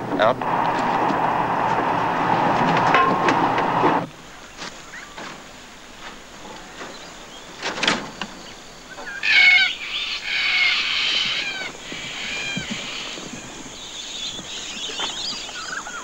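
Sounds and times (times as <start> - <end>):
birds squawking and calling: 6.5 - 16.0
faint high bird twittering: 6.8 - 16.0.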